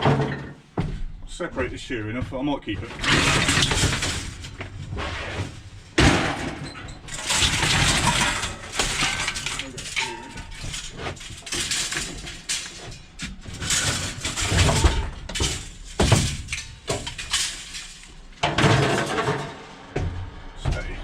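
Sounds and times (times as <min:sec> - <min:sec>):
scrap metal clanging onto a pile: 0:03.0 - 0:19.8.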